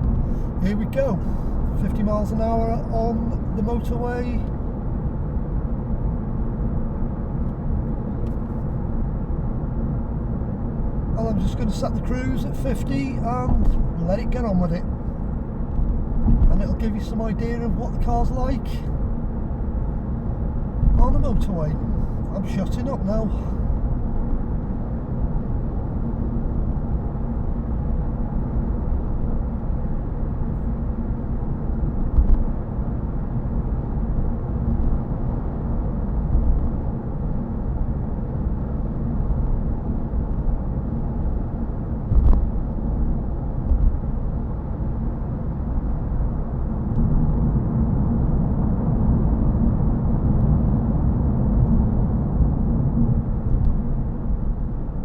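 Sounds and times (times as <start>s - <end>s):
tyre and road rumble: 11.1s - 24.4s, 40.6s - 49.2s
short thumps: 20.8s - 21.3s.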